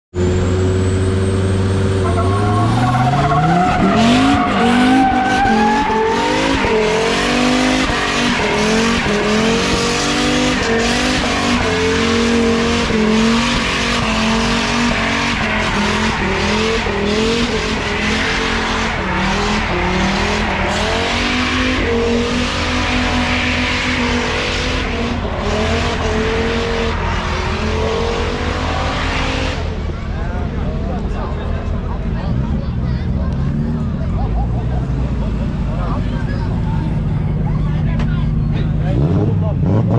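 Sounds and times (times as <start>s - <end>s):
car engine revving: 0.1s - 39.9s
tyre squeal: 0.8s - 7.0s.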